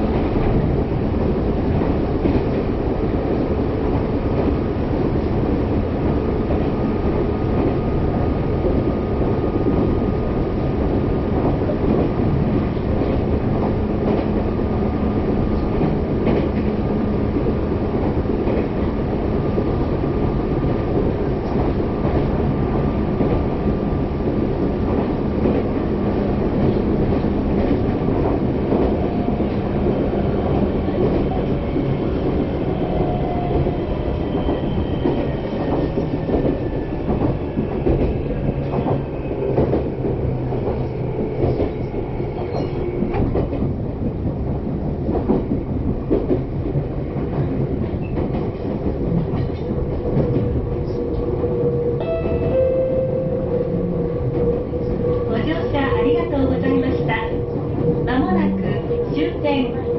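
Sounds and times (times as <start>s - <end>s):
train wheels rumbling on rail: 0.0s - 59.9s
higher whining tones: 52.0s - 55.0s.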